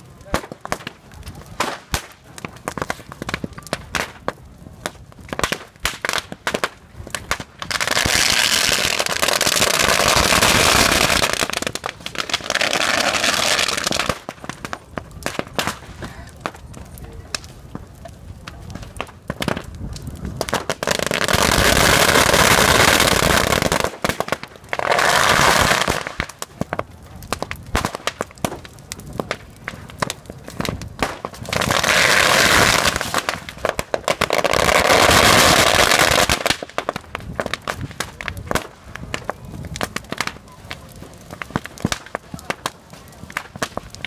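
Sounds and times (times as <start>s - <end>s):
firecrackers popping and crackling: 0.0s - 44.0s.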